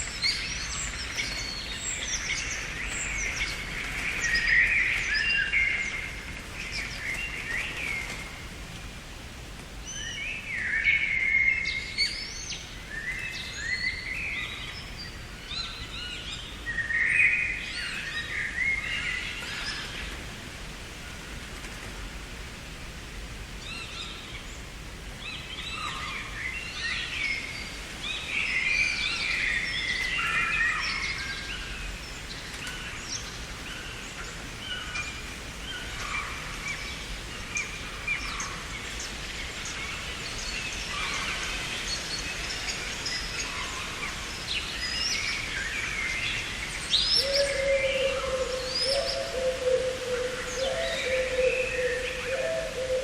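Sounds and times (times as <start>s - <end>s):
background hiss: 0.0s - 53.0s
low steady bird call: 23.6s - 53.0s
songbirds chirping and singing: 25.3s - 53.0s.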